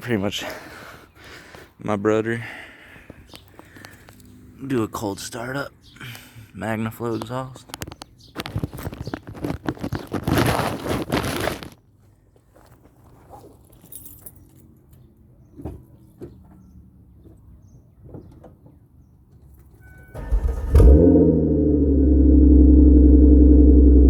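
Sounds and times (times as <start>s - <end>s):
car engine starting and idling: 20.1s - 24.0s.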